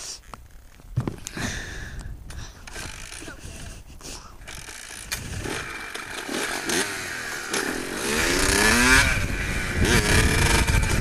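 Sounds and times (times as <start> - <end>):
pit bike engine revving: 4.5 - 11.0.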